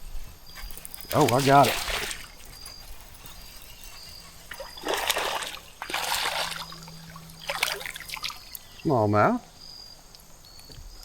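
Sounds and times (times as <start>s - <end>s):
fish splashing water: 1.1s - 2.4s, 4.5s - 8.8s.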